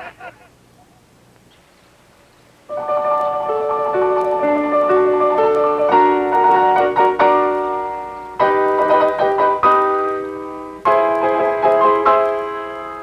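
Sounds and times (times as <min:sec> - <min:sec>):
piano chords: 0:02.7 - 0:13.0.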